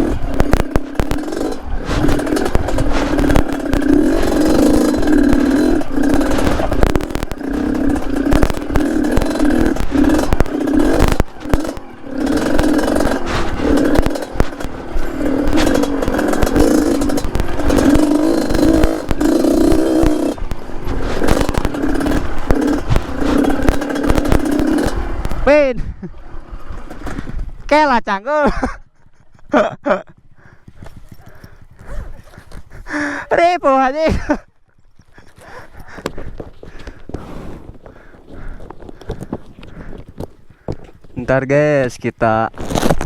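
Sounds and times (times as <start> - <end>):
bike clattering on stones: 0.0 - 25.4, 42.5 - 43.0
two-stroke motorbike revving: 0.0 - 27.7, 28.4 - 41.5.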